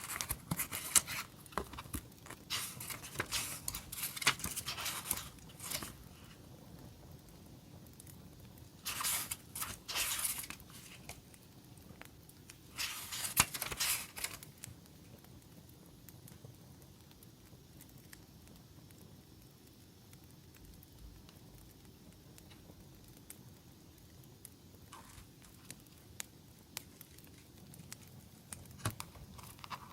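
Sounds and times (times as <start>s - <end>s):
packaging rustling and tearing: 0.0s - 6.4s, 8.8s - 11.3s, 12.7s - 14.7s, 28.6s - 29.9s
faint crackling: 0.0s - 15.2s.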